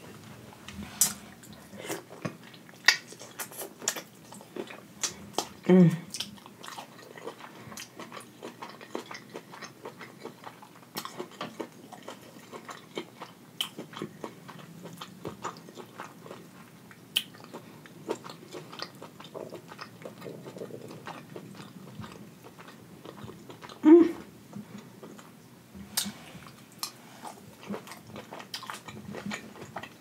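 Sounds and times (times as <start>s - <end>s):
wet chewing mouth clicks: 1.0s - 5.5s.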